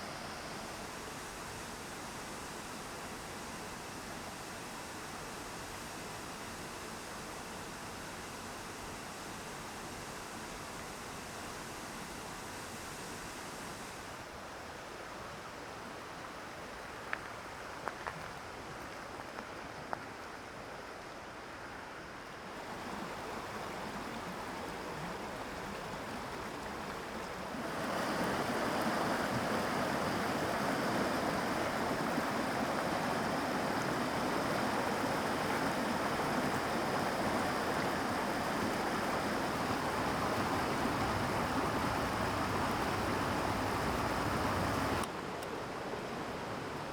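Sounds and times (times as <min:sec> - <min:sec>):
mountain stream rushing: 0:14.3 - 0:46.9.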